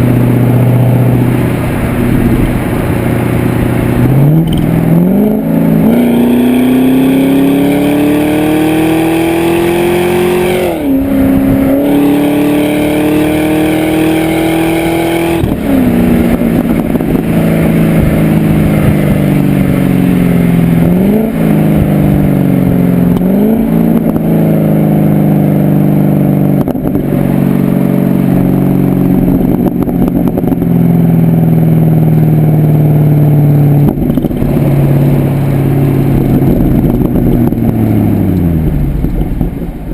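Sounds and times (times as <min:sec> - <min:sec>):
car engine accelerating through gears: 0:00.0 - 0:39.9.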